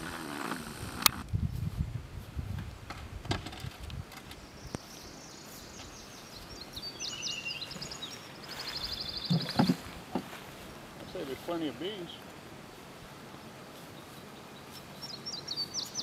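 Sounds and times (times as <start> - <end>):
songbird singing: 4.2 - 12.4, 13.3 - 16.0.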